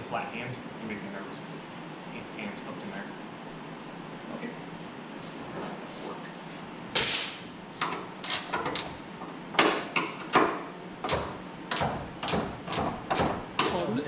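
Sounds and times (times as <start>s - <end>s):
wrench clicking on bolt: 8.2s - 8.9s.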